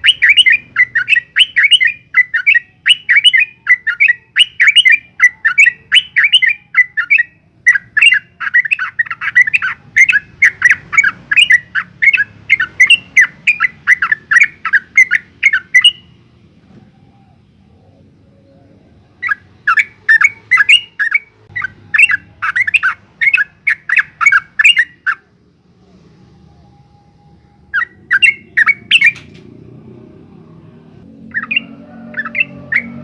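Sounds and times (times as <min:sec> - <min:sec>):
bulbul singing chattering notes: 0:27.7 - 0:29.4.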